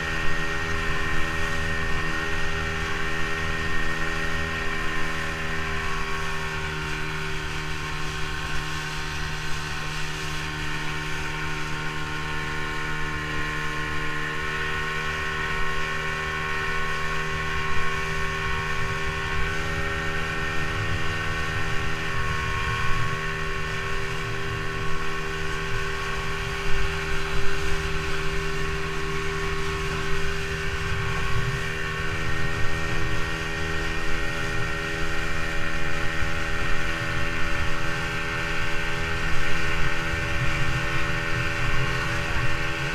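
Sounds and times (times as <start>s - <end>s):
motorboat engine running: 0.0s - 42.9s
rough rushing noise: 18.0s - 42.9s.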